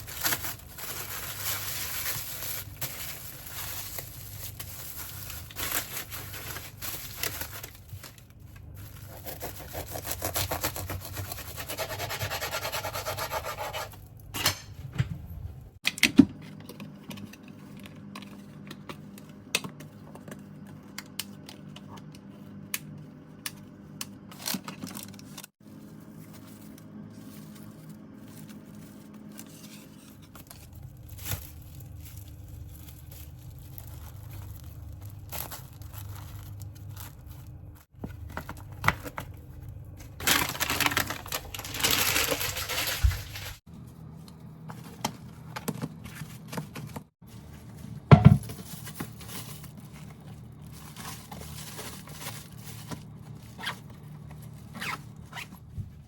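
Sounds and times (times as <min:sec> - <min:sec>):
packaging crinkling and tearing: 0:00.0 - 0:11.6, 0:26.3 - 0:43.6, 0:48.4 - 0:55.7.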